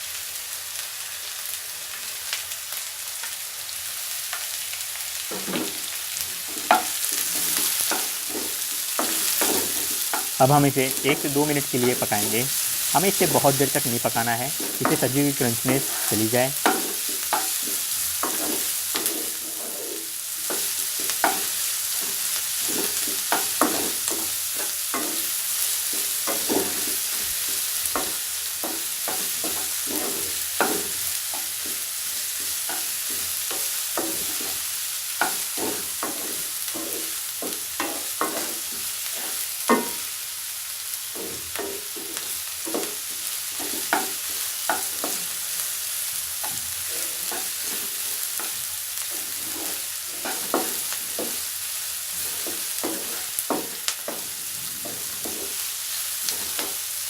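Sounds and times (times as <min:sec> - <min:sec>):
vegetables sizzling in hot oil: 0:00.0 - 0:57.0
stirring strokes scraping a pan: 0:05.2 - 0:57.0.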